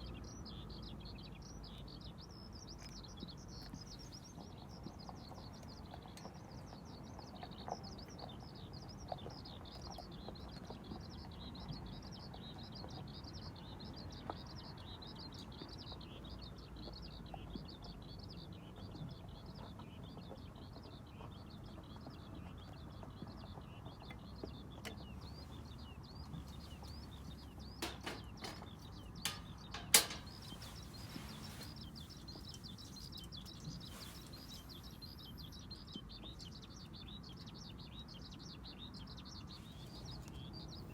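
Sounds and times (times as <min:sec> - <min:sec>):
low outdoor hum: 0:00.0 - 0:40.9
small birds chirping: 0:00.0 - 0:40.9
sharp clicks and knocks: 0:27.7 - 0:30.7.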